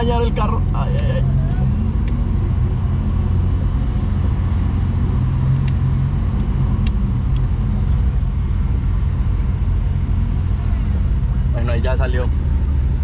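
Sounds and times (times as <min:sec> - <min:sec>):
engine rumbling under load: 0:00.0 - 0:13.0
sharp clicks: 0:01.9 - 0:02.4, 0:05.6 - 0:07.7.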